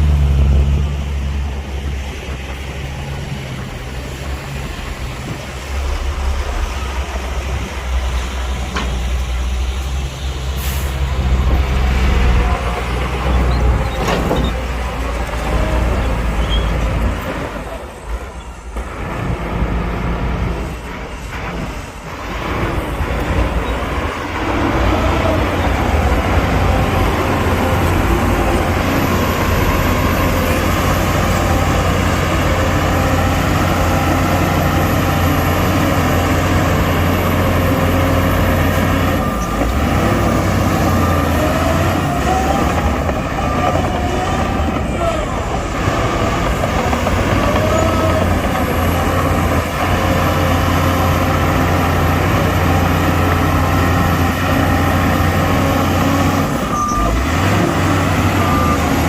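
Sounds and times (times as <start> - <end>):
heavy diesel machinery running: 0.0 - 59.0
short squeals: 16.0 - 17.0, 55.7 - 59.0.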